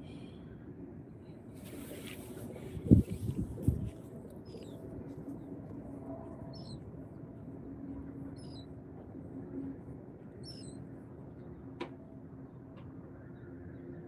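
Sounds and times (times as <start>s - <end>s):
low hum and rumble: 0.0s - 14.0s
bird chirping: 10.4s - 10.8s.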